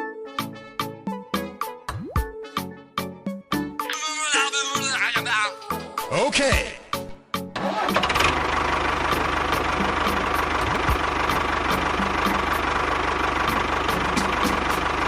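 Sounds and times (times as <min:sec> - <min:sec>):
small engine idling fast: 0:07.6 - 0:15.0.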